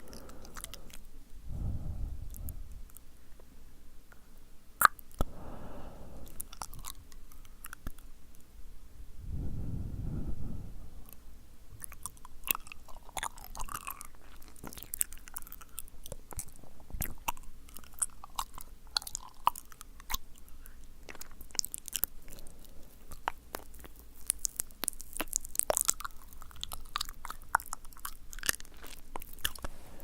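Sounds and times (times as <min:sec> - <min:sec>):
tongue clicks: 0:04.8 - 0:05.3, 0:06.2 - 0:08.5
lip smacks: 0:04.8 - 0:05.4, 0:06.2 - 0:08.5, 0:11.8 - 0:29.8.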